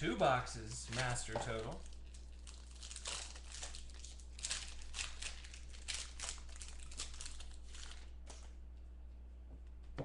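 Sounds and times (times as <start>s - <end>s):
packaging and cards rustling: 0.6s - 8.5s.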